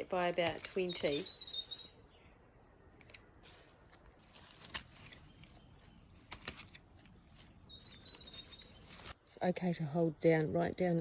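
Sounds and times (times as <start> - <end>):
clicks and rustles of plants: 0.0 - 1.3, 2.9 - 9.2
bird wavering whistle: 0.6 - 2.1.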